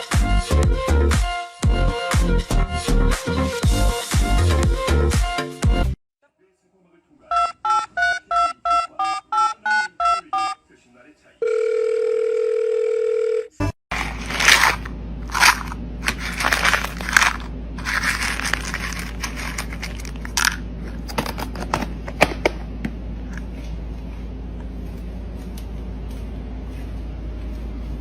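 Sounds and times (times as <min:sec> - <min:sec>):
crunching and tearing noises: 0:13.9 - 0:22.2.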